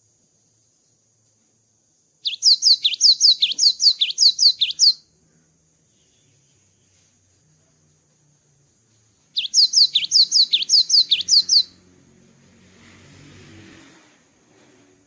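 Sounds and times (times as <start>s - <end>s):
faint high hiss: 0.0s - 15.0s
bird singing rapid notes: 2.2s - 5.1s, 9.3s - 11.8s.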